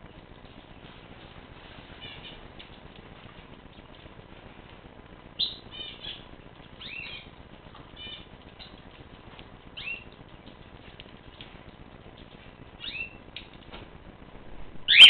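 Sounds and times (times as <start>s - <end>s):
small birds chirping: 1.9s - 4.3s, 5.3s - 13.6s.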